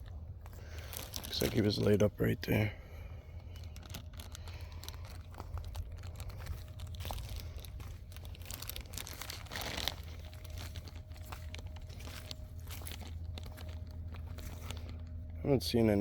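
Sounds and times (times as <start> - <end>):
footsteps crunching through leaf litter: 0.0 - 16.0
low rumble: 0.0 - 16.0
vegetation crackling and swishing: 3.7 - 15.2.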